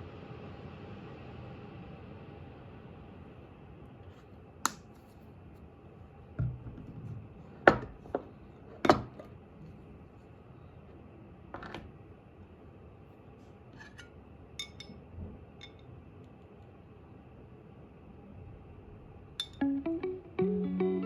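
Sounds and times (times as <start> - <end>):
kitchen knocks and clatters: 6.4 - 9.3.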